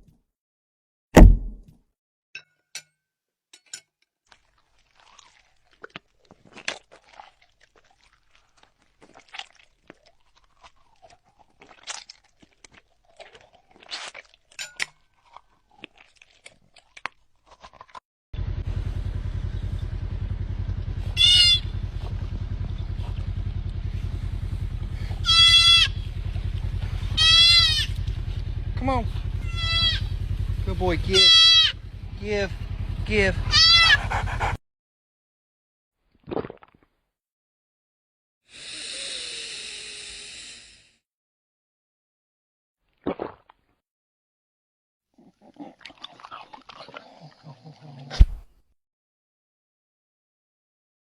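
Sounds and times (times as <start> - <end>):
steady low drone: 18.4 - 31.1
animal bleating calls: 21.1 - 21.7, 25.0 - 26.1, 27.1 - 28.1, 29.4 - 30.2, 31.0 - 31.8, 33.4 - 34.2.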